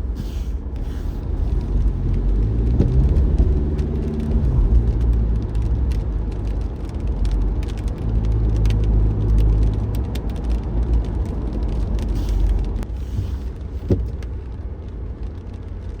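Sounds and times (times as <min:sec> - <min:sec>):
car road rumble: 0:00.0 - 0:16.0.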